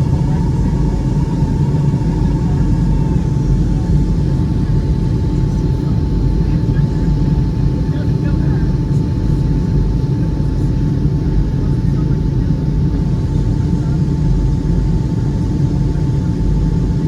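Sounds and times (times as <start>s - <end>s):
loud low rumble: 0.0s - 6.6s
faint high hum: 0.0s - 7.3s.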